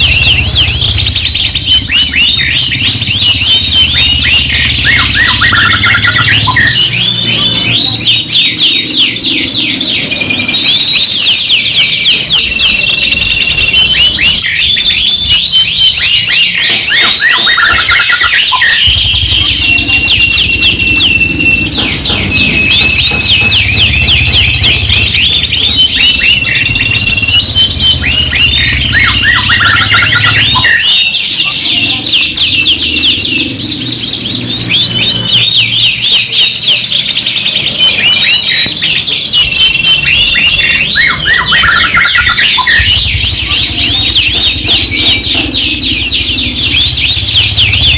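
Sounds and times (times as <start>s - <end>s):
canaries singing: 0.0s - 47.9s.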